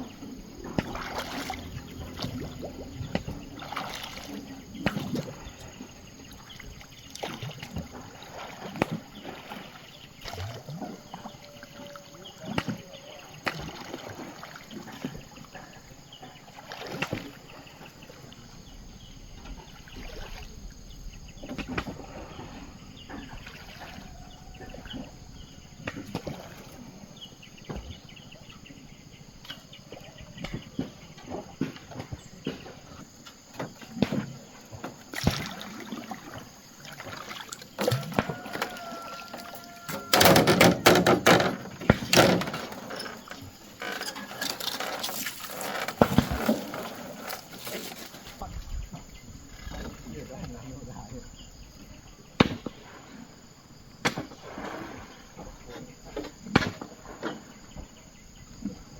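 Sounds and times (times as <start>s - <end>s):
water splashing around a boat: 0.0s - 58.9s
knocks and clicks: 39.9s - 43.2s.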